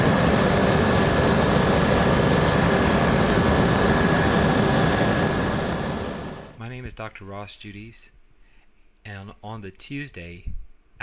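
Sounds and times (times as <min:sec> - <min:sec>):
helicopter engine and rotor noise: 0:00.0 - 0:06.6
thin high whine: 0:00.0 - 0:06.6.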